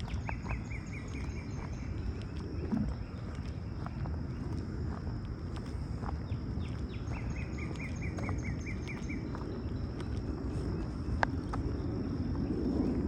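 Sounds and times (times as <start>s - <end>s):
songbird trilling: 0.0s - 2.3s, 6.2s - 9.8s
low outdoor rumble: 0.0s - 13.0s
steady high-pitched hum: 0.0s - 13.0s.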